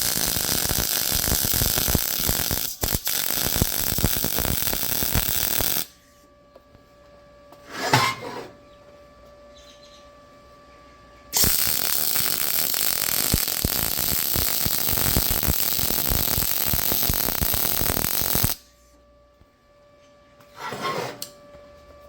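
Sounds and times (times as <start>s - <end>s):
welding arc crackling hiss: 0.0s - 6.0s, 11.4s - 18.7s
faint steady hum: 0.0s - 22.0s.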